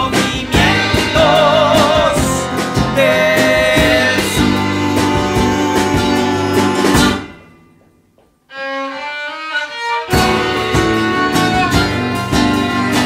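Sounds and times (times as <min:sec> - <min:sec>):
folk-rock band playing: 0:00.0 - 0:07.5, 0:09.6 - 0:13.0.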